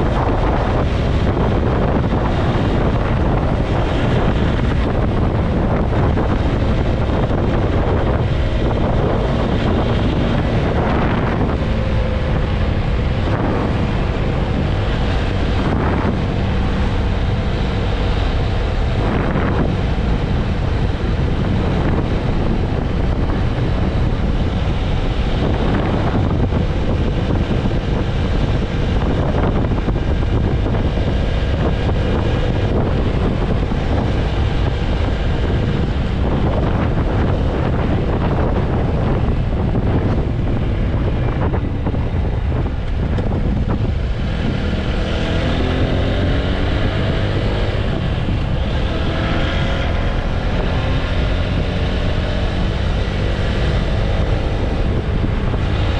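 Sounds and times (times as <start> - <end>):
motorcycle engine running: 0.0 - 55.9
wind buffeting microphone: 0.0 - 55.9.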